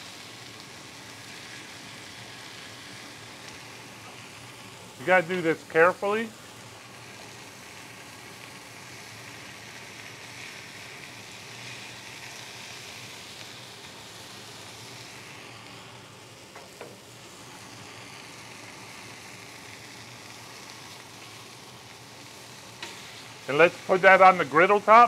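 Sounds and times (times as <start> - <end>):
fish sizzling on a griddle: 0.0 - 25.0
spatula clicking on griddle: 22.7 - 23.2.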